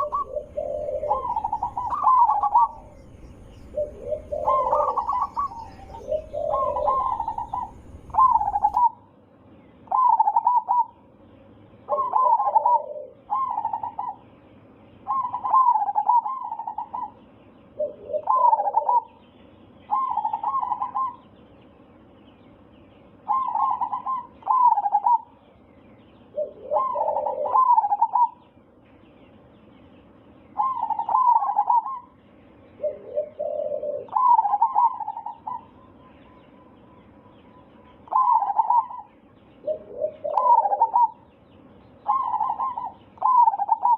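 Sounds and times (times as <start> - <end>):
dove cooing: 0.0 - 9.0, 9.9 - 11.0, 11.9 - 14.2, 15.0 - 17.2, 17.8 - 19.2, 19.9 - 21.3, 23.2 - 25.4, 26.3 - 28.4, 30.6 - 32.2, 32.8 - 36.8, 37.9 - 41.3, 42.0 - 43.9.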